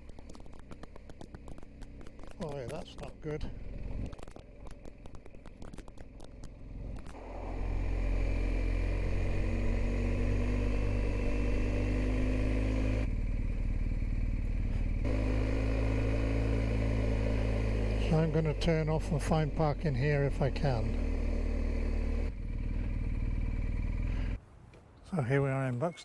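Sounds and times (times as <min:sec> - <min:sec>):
engine ticking: 0:00.0 - 0:24.4
motorcycle engine pulling away: 0:00.0 - 0:24.4.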